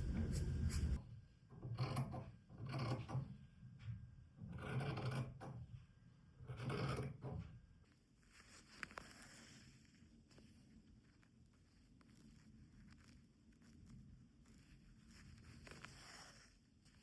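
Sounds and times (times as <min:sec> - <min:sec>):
fabric rustling: 0:08.2 - 0:17.0.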